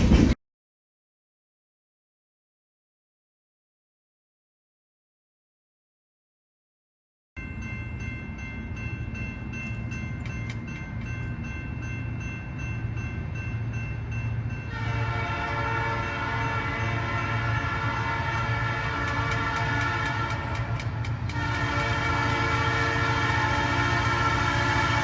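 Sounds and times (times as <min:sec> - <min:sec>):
low rumble of train: 0:00.0 - 0:00.4, 0:07.4 - 0:25.0
locomotive air horn: 0:14.7 - 0:25.0.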